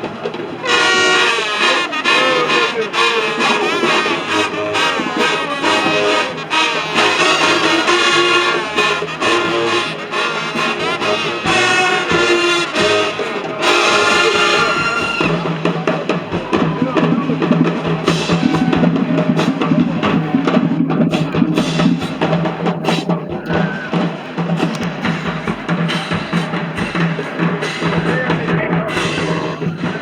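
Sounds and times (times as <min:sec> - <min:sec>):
brass chord: 0:00.0 - 0:16.4
drumline beat: 0:00.0 - 0:30.0.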